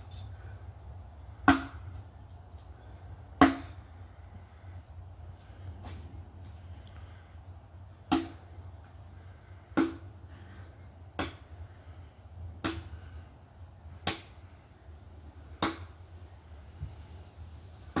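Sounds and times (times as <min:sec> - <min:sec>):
axe chopping wood: 0:01.4 - 0:02.0, 0:03.4 - 0:03.9, 0:08.1 - 0:08.5, 0:09.7 - 0:10.1, 0:11.2 - 0:11.5, 0:12.6 - 0:13.0, 0:14.0 - 0:14.4, 0:15.6 - 0:16.0.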